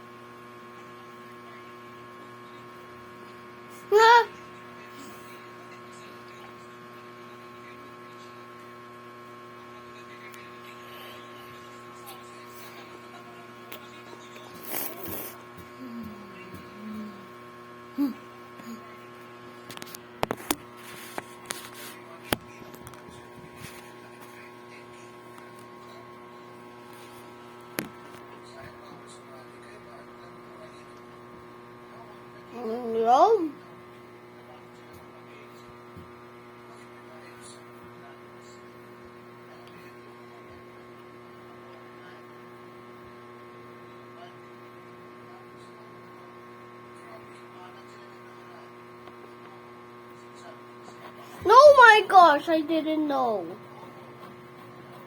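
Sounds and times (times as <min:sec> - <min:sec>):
electrical hum: 0:00.0 - 0:36.7, 0:50.7 - 0:55.0
steady electrical hum: 0:29.3 - 0:34.6, 0:51.2 - 0:53.8.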